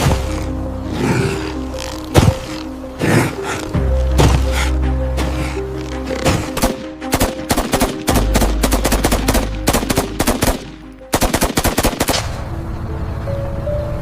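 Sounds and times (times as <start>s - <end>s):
background music: 0.0s - 14.0s
rapid automatic gunfire: 6.6s - 12.4s.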